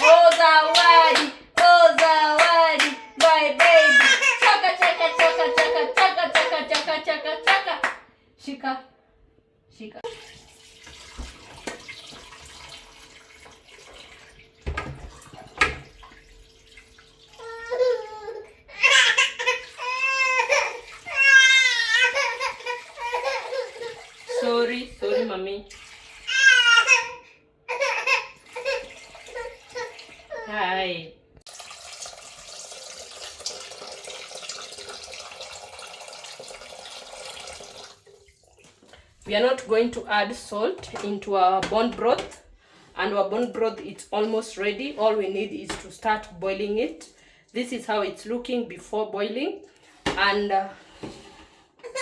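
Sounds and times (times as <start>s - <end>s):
water running from tap: 0.0s - 6.5s, 10.0s - 30.6s, 31.5s - 39.7s
young child crying: 17.4s - 23.9s.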